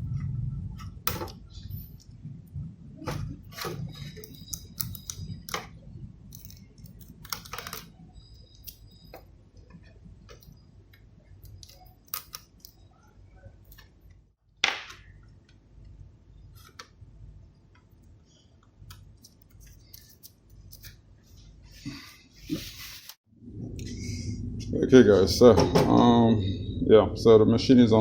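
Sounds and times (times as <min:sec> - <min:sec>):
small parts and tools clicking: 0:03.5 - 0:09.7, 0:10.3 - 0:12.8.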